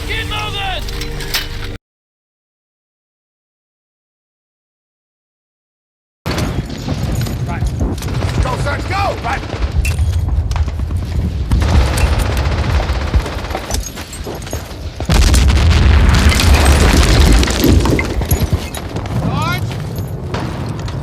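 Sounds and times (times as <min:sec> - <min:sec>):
explosions: 0:06.3 - 0:13.8, 0:14.7 - 0:21.0
rifle and machine-gun fire: 0:06.3 - 0:21.0.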